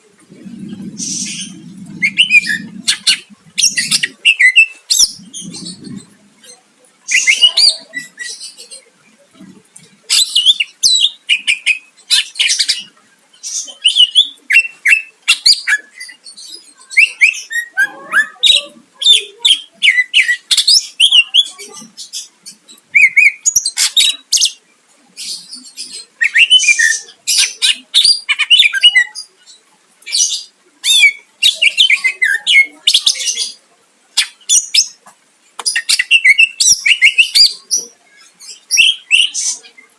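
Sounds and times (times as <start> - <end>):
bird singing whistled notes: 1.1 - 6.0.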